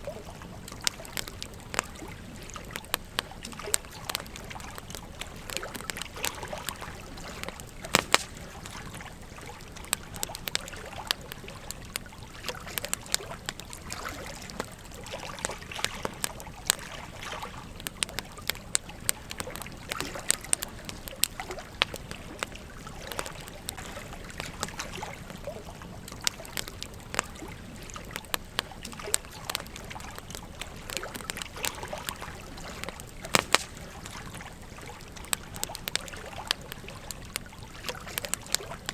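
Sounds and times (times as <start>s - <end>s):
campfire crackling and popping: 0.0s - 38.9s
gentle stream trickling: 0.0s - 38.9s.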